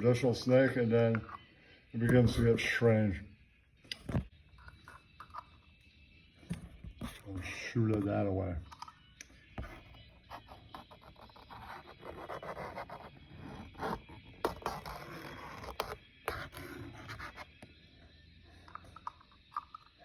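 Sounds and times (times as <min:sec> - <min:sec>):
pen scratching on paper: 0:07.0 - 0:07.2, 0:09.6 - 0:17.6.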